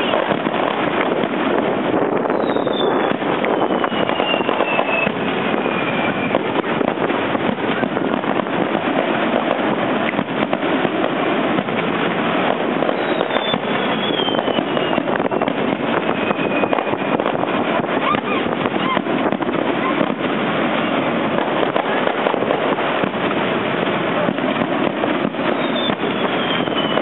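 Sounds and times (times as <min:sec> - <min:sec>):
falling firework whistle: 0:00.0 - 0:07.1, 0:11.5 - 0:23.1, 0:24.2 - 0:27.0
fireworks crackling: 0:00.0 - 0:27.0.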